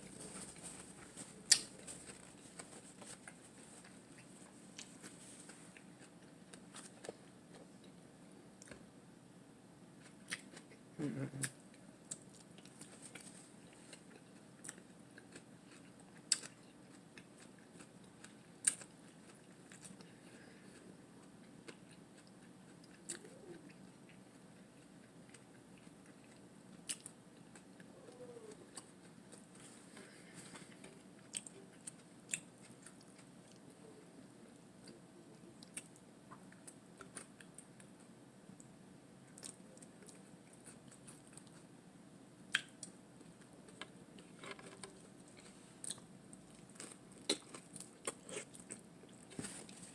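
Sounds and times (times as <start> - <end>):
chewing lettuce: 0.0 - 8.0, 10.0 - 38.1, 39.3 - 41.7, 42.5 - 49.9
faint steady hum: 0.0 - 49.9.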